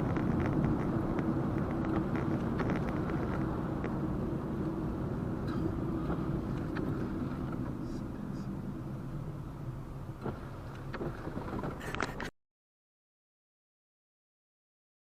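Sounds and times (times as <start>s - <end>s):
car engine and road noise: 0.0s - 12.3s.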